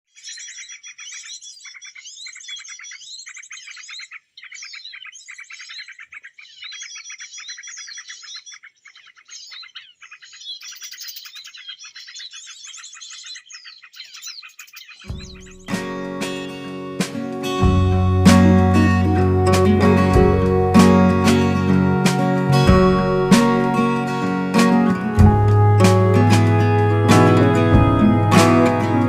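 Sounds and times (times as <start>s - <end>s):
songbird chattering chirps: 0.1s - 16.4s.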